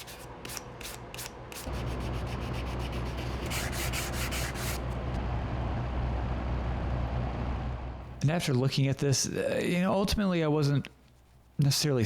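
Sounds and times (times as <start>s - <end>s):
sanding strokes on wood: 0.0s - 4.8s.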